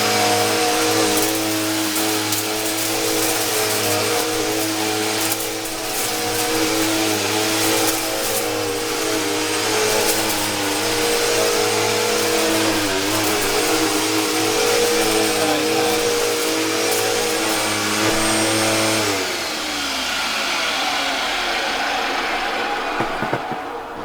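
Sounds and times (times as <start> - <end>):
vacuum cleaner motor running: 0.0 - 24.0
motor winding down whine: 5.2 - 23.2.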